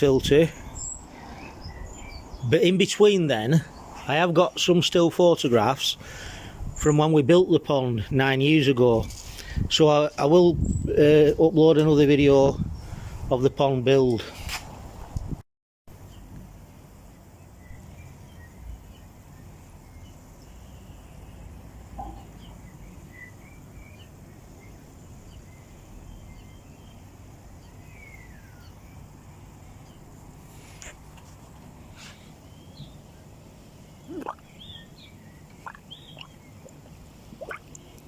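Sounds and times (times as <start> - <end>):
small birds chirping: 0.0 - 4.7, 17.0 - 38.0.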